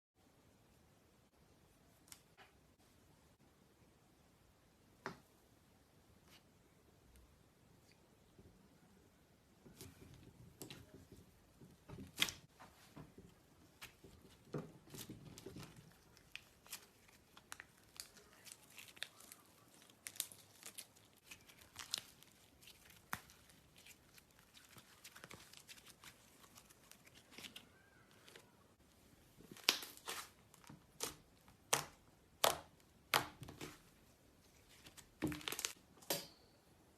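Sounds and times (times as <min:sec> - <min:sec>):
slime popping and crackling: 0:14.8 - 0:27.5.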